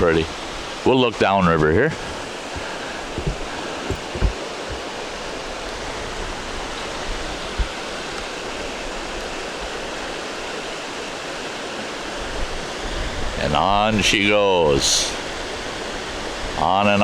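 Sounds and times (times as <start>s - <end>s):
river rapids rushing: 0.0s - 17.0s
soft low thumps: 1.5s - 8.3s.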